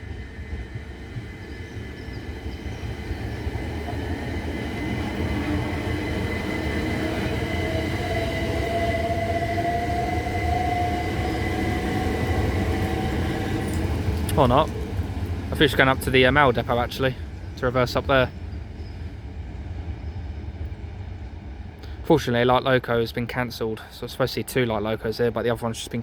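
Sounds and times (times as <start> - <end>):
electric train traction motor whine: 0.0 - 15.9
rumble of wheels on rail: 0.0 - 26.0.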